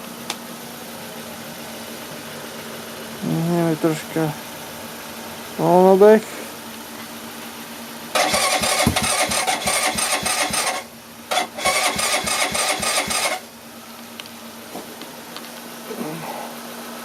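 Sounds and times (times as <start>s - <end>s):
motorcycle starter cranking: 8.2s - 13.4s.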